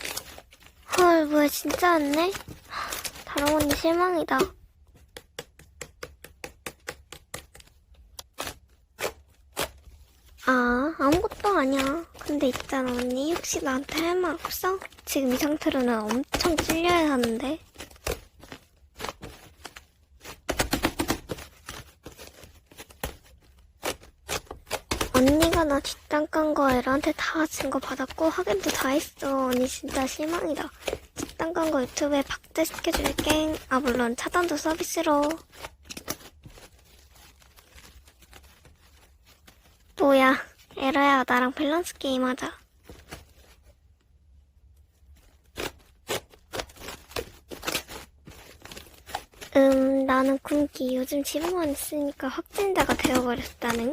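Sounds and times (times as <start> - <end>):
slime squishing: 0.0 - 53.9.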